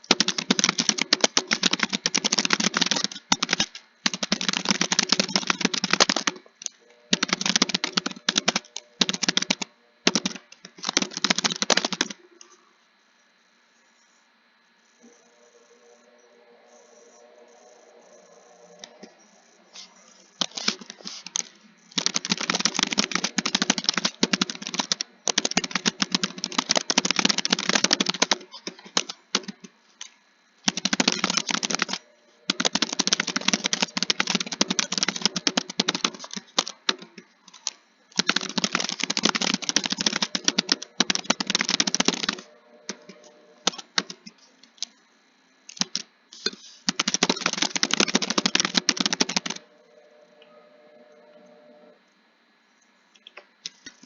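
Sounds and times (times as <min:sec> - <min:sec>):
computer keyboard typing: 0:00.0 - 0:12.6, 0:19.8 - 0:44.9, 0:45.7 - 0:49.7.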